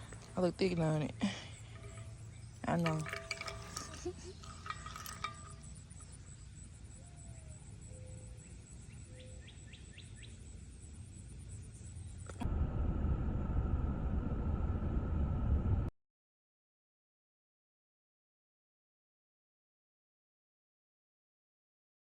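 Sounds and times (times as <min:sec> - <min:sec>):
faint bird chirps: 0:04.1 - 0:12.3
low rumble: 0:12.5 - 0:15.9.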